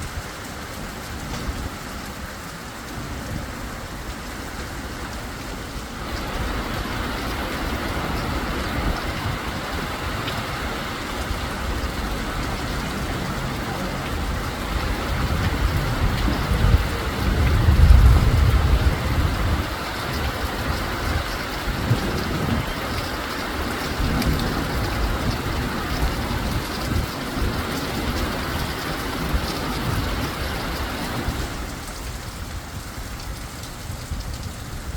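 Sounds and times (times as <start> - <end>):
heavy rain pouring: 0.0 - 34.9
low rumble: 11.1 - 19.6.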